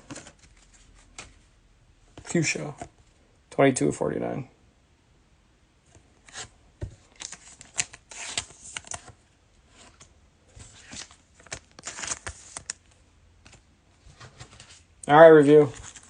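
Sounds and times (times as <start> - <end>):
trading cards shuffling: 0.0 - 1.4, 6.2 - 14.8, 15.4 - 16.0.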